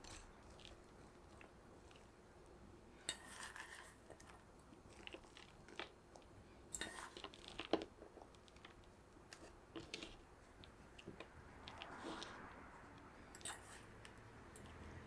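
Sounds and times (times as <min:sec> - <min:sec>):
crisp crust crunching: 0:04.2 - 0:06.4.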